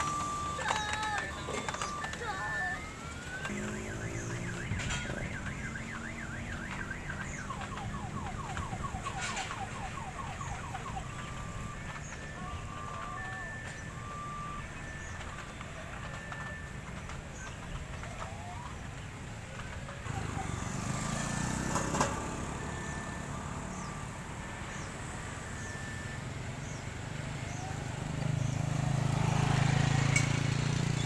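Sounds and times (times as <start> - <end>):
electronic siren warble: 0.0 - 16.7, 20.0 - 26.3
electronic beeps: 0.0 - 16.8
electronic pitch sweeps: 1.8 - 14.8.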